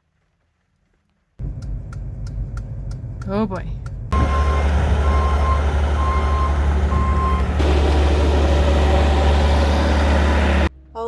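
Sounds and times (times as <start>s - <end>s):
vehicle engine rumbling: 1.4s - 10.8s
reversing alarm beeps: 4.2s - 7.6s.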